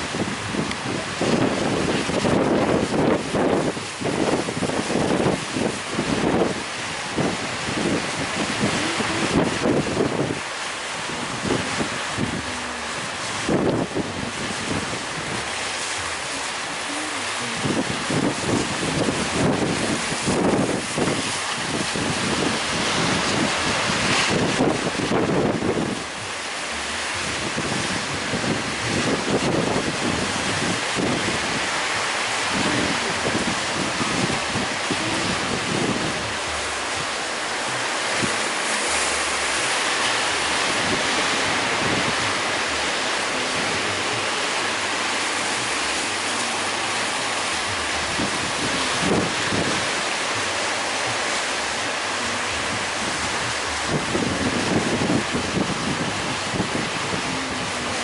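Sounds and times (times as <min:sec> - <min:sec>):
breaking waves: 0:00.0 - 0:58.0
wind buffeting microphone: 0:00.0 - 0:58.0.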